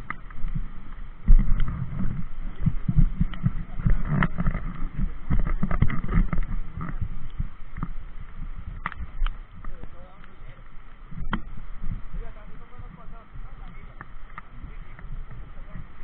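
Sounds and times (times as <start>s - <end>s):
bike rattling over rough trail: 0.0s - 16.0s
wind on microphone: 0.0s - 16.0s.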